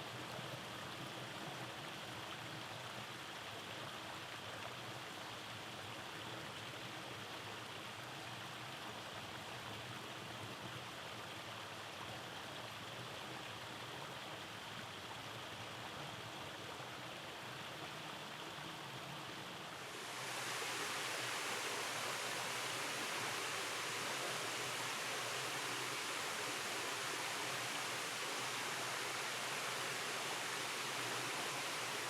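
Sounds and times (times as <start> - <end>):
stream rushing over rocks: 18.7 - 32.0.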